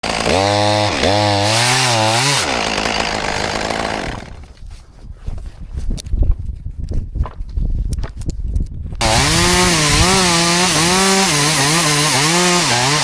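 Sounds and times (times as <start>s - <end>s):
chainsaw cutting: 0.0s - 4.6s, 9.0s - 13.0s.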